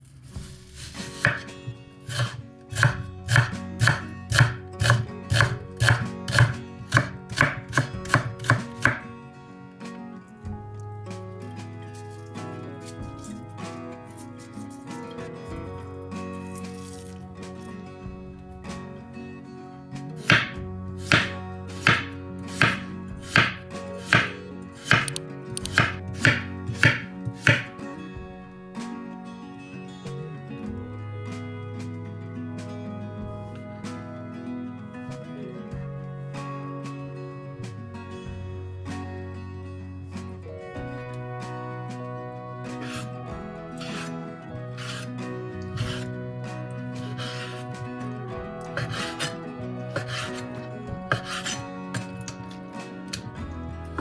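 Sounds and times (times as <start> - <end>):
knife chopping on cutting board: 0.4 - 9.1, 20.2 - 27.8, 42.8 - 43.1, 43.8 - 44.1, 44.8 - 45.1, 45.7 - 46.1, 46.9 - 47.8, 48.7 - 53.3.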